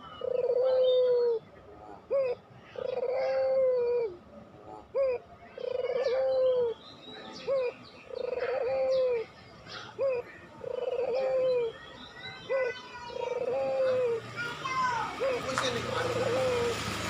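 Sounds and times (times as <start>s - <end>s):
small birds chirping: 0.0s - 3.6s, 4.8s - 16.9s
dove cooing: 0.0s - 4.2s, 4.8s - 6.8s, 7.4s - 17.0s.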